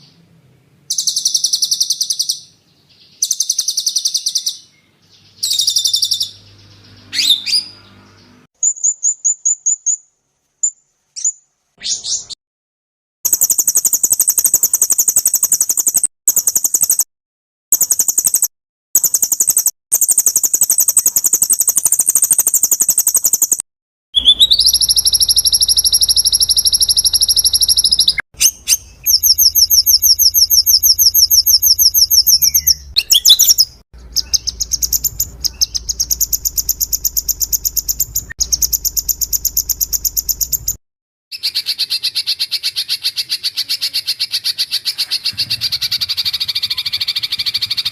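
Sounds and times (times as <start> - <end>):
songbird trills: 0.9 - 12.4, 13.3 - 17.1, 24.2 - 40.8, 41.4 - 47.9
low recording hum: 33.6 - 40.7.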